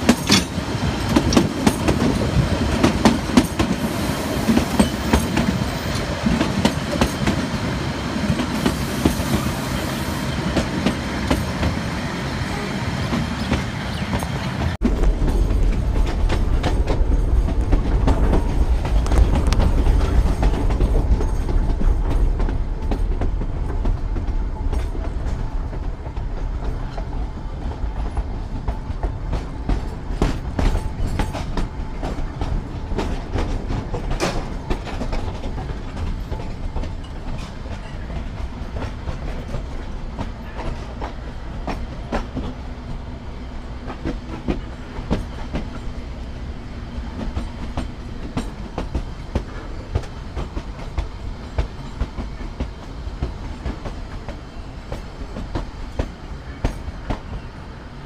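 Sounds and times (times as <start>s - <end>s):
train wheel and rail rumble: 0.0s - 58.0s
wheels clicking over rail joints: 27.8s - 57.5s.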